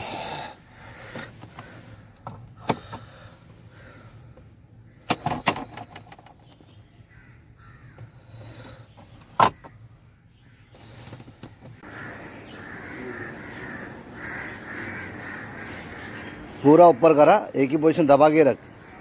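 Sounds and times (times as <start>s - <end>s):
crows cawing: 0.0s - 2.0s, 2.8s - 5.1s, 7.1s - 8.8s, 11.8s - 17.2s.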